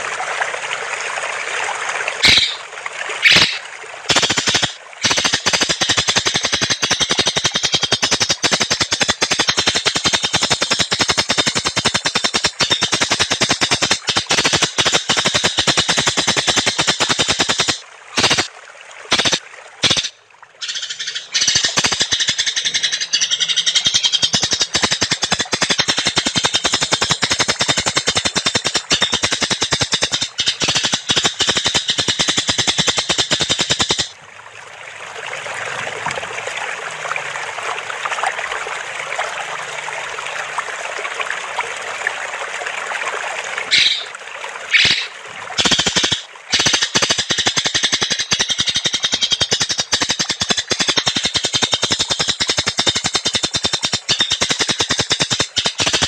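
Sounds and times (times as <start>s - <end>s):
bird rattling trill: 3.2s - 18.4s, 19.1s - 34.1s, 44.7s - 56.0s.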